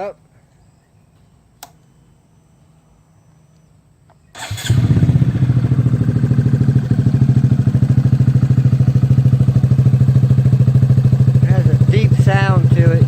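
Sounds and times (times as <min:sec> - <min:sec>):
motorcycle engine idling: 0:04.3 - 0:13.0
starter motor whirr: 0:04.4 - 0:05.5.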